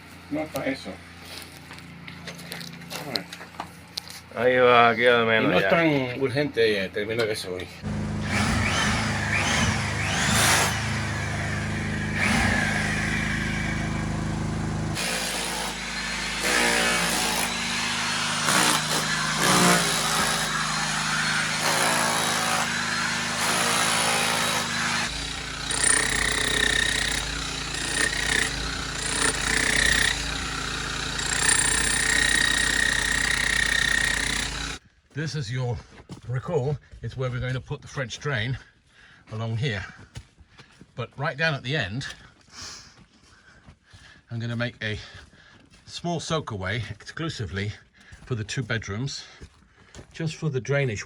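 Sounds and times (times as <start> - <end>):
hammer drill boring into stone: 7.8 - 34.8.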